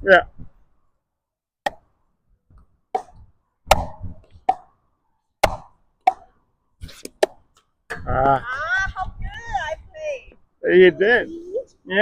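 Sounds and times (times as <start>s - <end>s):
ball struck with rackets: 1.6s - 1.9s, 2.9s - 4.8s, 5.4s - 6.3s.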